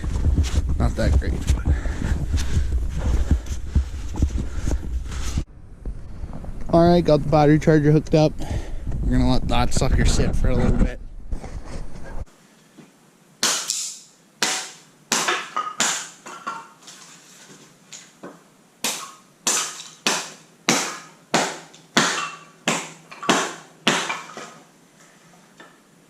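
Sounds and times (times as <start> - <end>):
hatchet chopping kindling: 13.4 - 16.5, 18.8 - 24.6.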